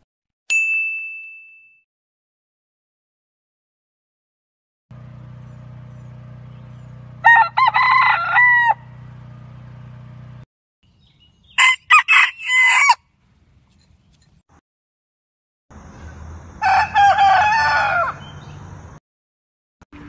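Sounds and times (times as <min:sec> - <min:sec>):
rooster crowing: 0:07.2 - 0:09.0, 0:11.6 - 0:13.0, 0:16.6 - 0:18.4.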